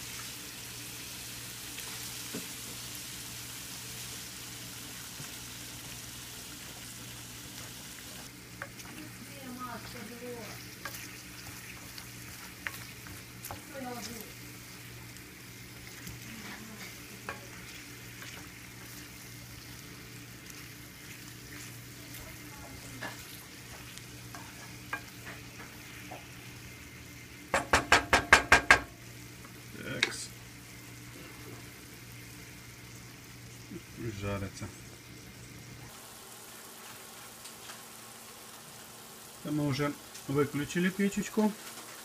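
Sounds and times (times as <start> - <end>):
mushrooms sizzling in oil: 0.0 - 42.0
wooden spatula scraping pan: 8.6 - 15.0, 15.7 - 19.7, 20.4 - 26.3.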